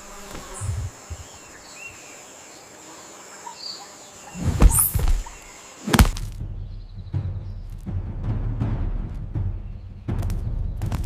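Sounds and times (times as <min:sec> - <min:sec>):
faint bird chirps: 0:00.0 - 0:06.0
high insect-like whine: 0:00.0 - 0:06.3
heavy low thumps: 0:06.0 - 0:11.0.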